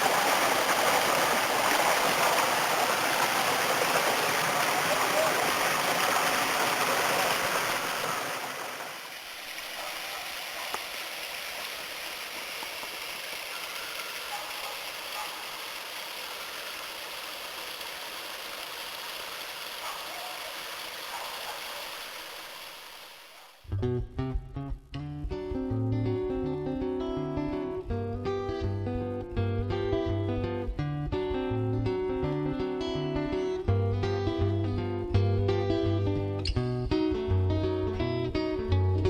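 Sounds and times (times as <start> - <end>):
water rushing over small falls: 0.0 - 23.6.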